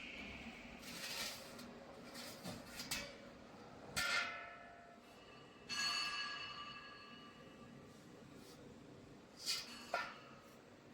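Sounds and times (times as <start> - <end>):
ringing metal clangs: 5.6 - 7.6.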